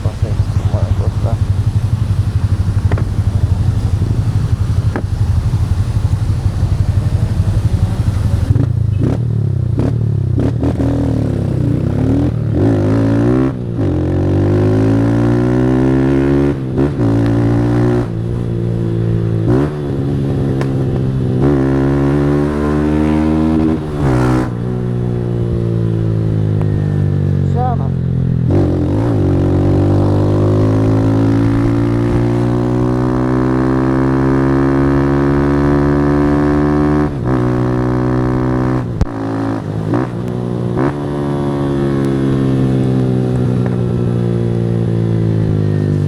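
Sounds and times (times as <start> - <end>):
heavy rushing hiss: 0.0 - 8.6
motorcycle engine revving: 0.0 - 46.0.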